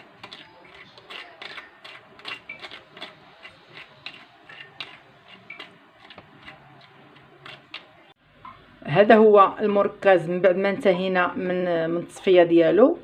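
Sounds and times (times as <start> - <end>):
sieve scraping and clicking: 0.0 - 8.1.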